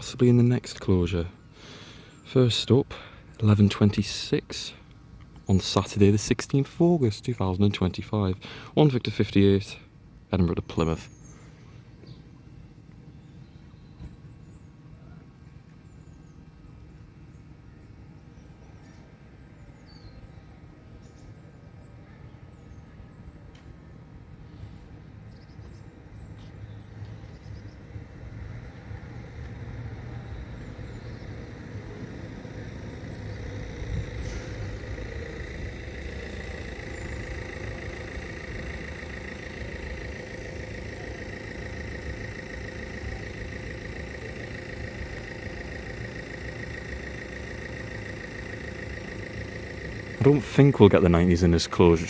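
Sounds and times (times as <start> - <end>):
vehicles idling low rumble: 26.0 - 52.0
steady high-pitched tone: 29.6 - 52.0.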